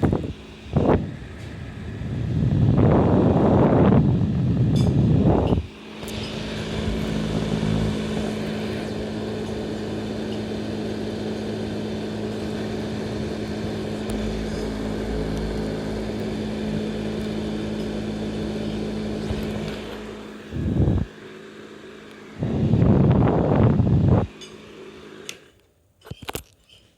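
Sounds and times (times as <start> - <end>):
hair dryer motor humming: 2.4 - 25.4
air rushing on microphone: 18.8 - 21.1.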